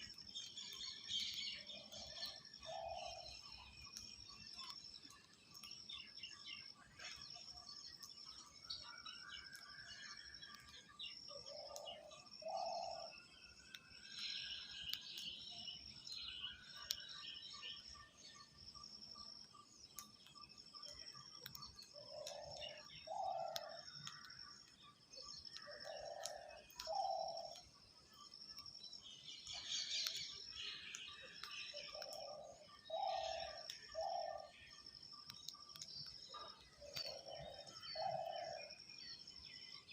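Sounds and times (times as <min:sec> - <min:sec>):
birds chirping: 0:00.0 - 0:39.9
insect drone: 0:00.0 - 0:39.9
small clicks: 0:13.5 - 0:17.2, 0:19.2 - 0:32.3, 0:33.6 - 0:38.1.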